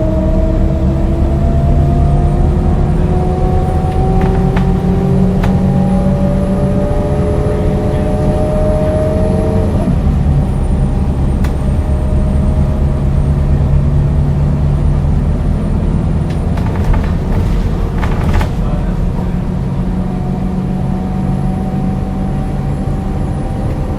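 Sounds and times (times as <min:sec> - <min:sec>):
diesel bus engine whine: 0:00.0 - 0:23.9.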